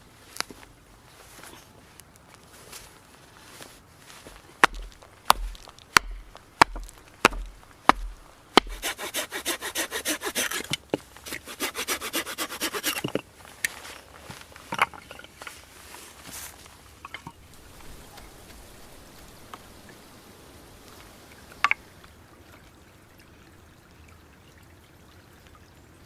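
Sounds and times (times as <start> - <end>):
knocks on wood: 4.6 - 8.8
hand saw cutting wood: 4.6 - 13.2.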